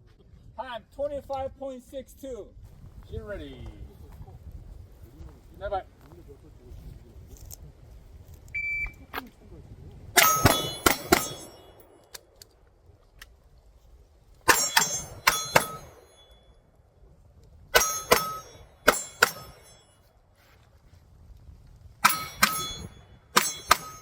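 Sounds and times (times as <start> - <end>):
pistol shots: 10.2 - 11.8, 17.8 - 19.6
steel targets ringing: 10.2 - 12.1, 14.5 - 16.6, 17.8 - 20.1, 22.0 - 24.0.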